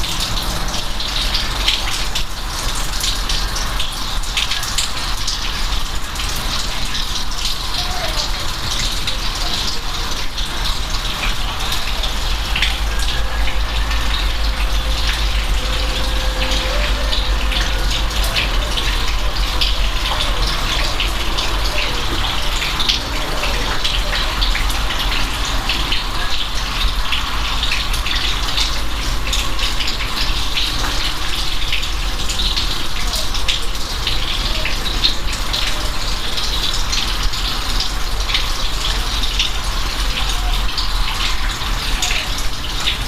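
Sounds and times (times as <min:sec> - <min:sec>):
rain hiss: 0:00.0 - 0:43.0
raindrops ticking: 0:00.0 - 0:43.0
low rumble: 0:12.0 - 0:20.2.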